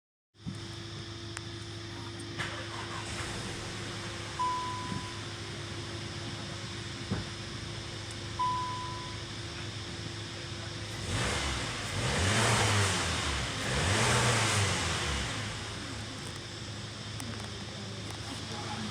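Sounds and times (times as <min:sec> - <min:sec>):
car engine idling and revving: 0:00.4 - 0:18.9
short high beeps: 0:08.4 - 0:09.2.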